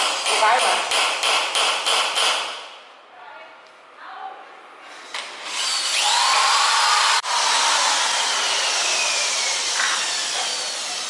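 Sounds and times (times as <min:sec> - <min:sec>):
electric power tool whining: 0:05.2 - 0:11.0.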